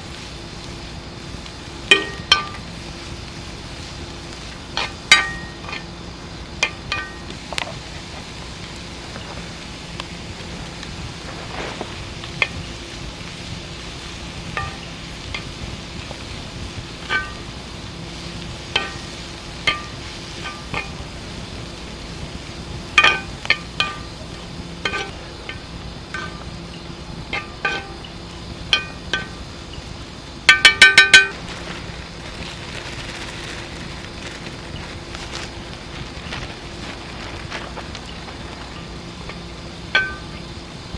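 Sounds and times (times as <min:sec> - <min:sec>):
steady hiss: 0:00.0 - 0:40.9
metal utensil tapping metal pot: 0:01.9 - 0:02.6, 0:18.8 - 0:21.0, 0:23.0 - 0:24.1, 0:24.8 - 0:26.5.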